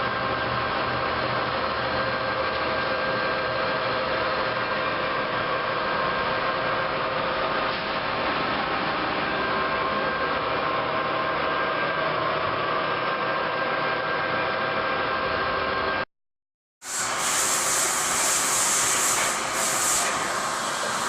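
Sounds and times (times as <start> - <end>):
lathe whirring: 16.9 - 21.0.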